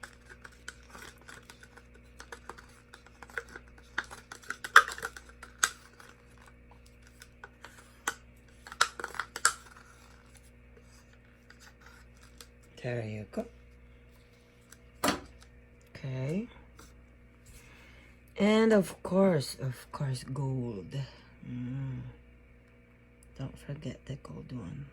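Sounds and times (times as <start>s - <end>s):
plastic cups clicking and tapping: 0.0s - 10.2s
faint electrical hum: 0.0s - 24.9s.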